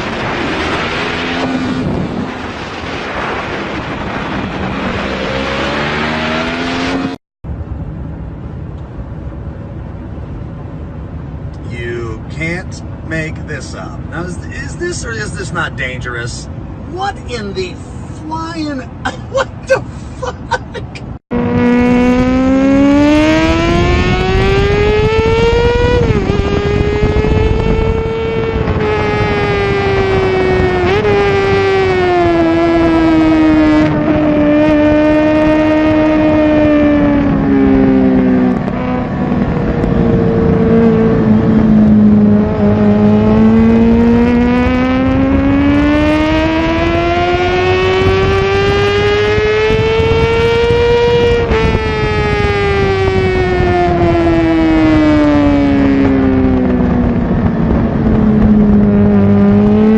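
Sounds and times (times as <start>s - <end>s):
high-revving motorcycle engine: 0.0s - 7.2s, 21.2s - 59.9s.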